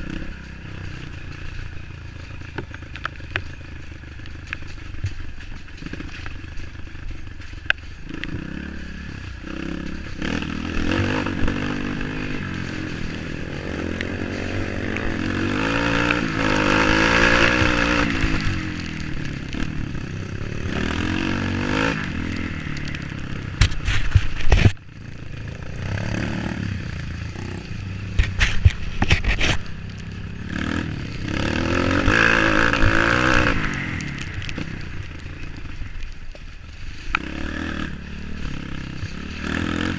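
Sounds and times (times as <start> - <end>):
off-road motorcycle engine revving: 0.0 - 39.9.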